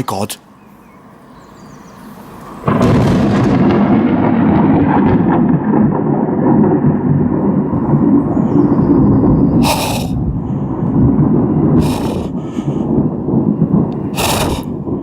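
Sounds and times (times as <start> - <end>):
thunder crack and rumble: 2.6 - 15.0.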